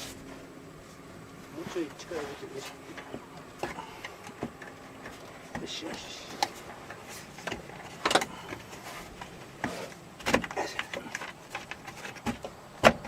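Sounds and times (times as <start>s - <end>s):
light scraping: 0.0s - 10.0s
metal parts knocking and clunking: 2.9s - 13.0s.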